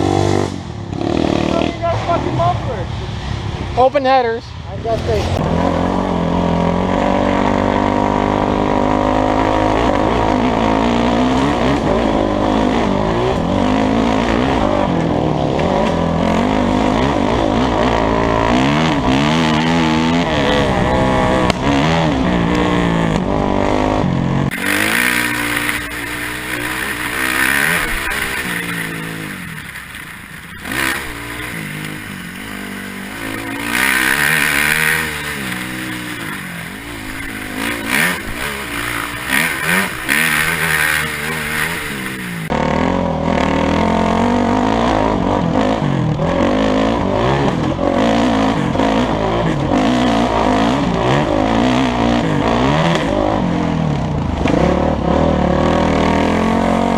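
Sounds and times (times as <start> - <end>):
dirt bike engine revving: 0.0 - 2.2, 5.2 - 56.9
wind rushing over microphone: 19.9 - 23.7.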